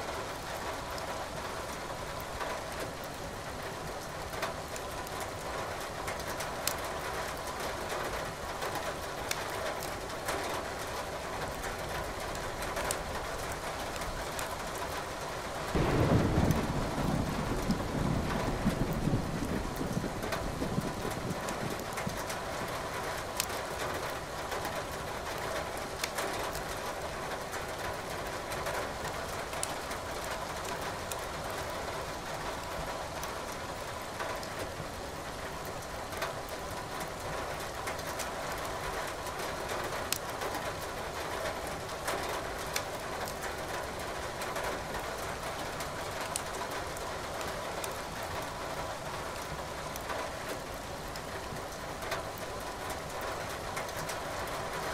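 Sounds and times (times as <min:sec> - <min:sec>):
steady rain: 0:00.0 - 0:54.9
wood fire crackling: 0:06.6 - 0:07.5, 0:15.7 - 0:22.4, 0:25.3 - 0:26.7.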